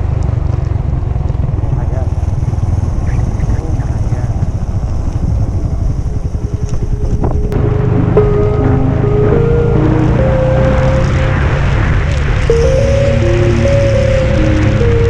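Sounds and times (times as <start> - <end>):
motorcycle engine and wind rumble: 0.0 - 15.0
background music with held notes: 6.7 - 15.0.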